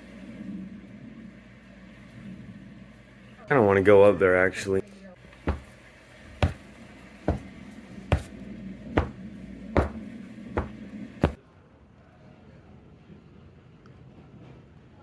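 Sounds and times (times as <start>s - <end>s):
footsteps climbing stairs: 5.5s - 5.7s, 6.4s - 6.6s, 7.3s - 7.5s, 8.1s - 8.3s, 9.0s - 9.2s, 9.8s - 11.4s.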